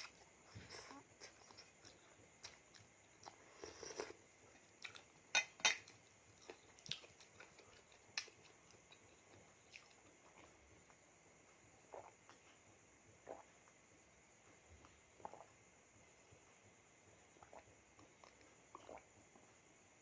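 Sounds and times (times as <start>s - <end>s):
chewing: 0.0s - 11.0s, 17.4s - 19.4s.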